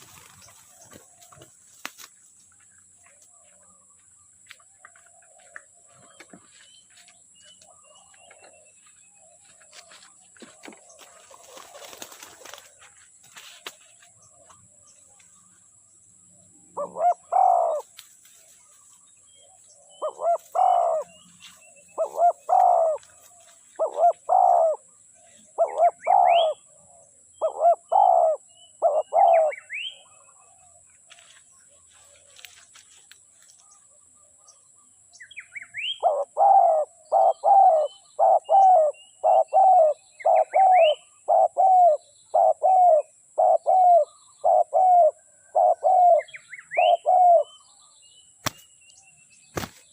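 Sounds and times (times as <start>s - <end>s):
small birds chirping: 0.0s - 49.9s
dove cooing: 10.4s - 12.8s, 16.6s - 17.9s, 19.9s - 21.2s, 21.9s - 26.7s, 27.4s - 30.1s, 35.8s - 47.5s.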